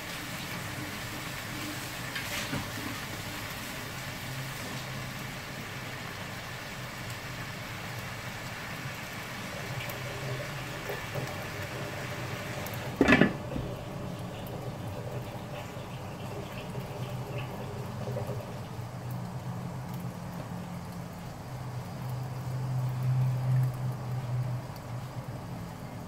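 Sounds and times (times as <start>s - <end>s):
mussels sizzling in a wok: 0.0s - 17.2s
gas burner low hum: 6.5s - 26.0s.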